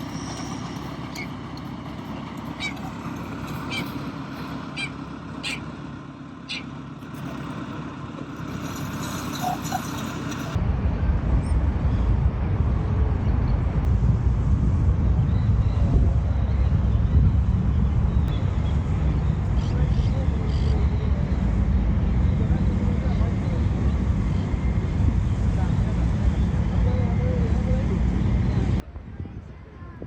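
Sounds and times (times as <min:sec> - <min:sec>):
distant city traffic hum: 0:00.0 - 0:30.0
wind buffeting the microphone: 0:10.4 - 0:30.0.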